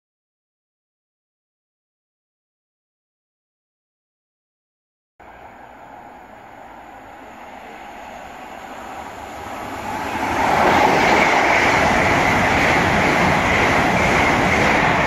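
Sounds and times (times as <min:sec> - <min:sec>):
train high whine: 0:05.2 - 0:15.0
train rushing past: 0:05.2 - 0:15.0.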